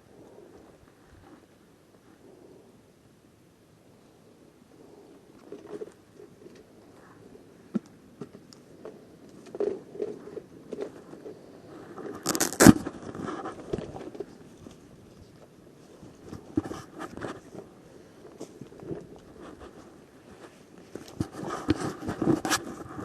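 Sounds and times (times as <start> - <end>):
rustling and crunching: 4.8 - 23.0.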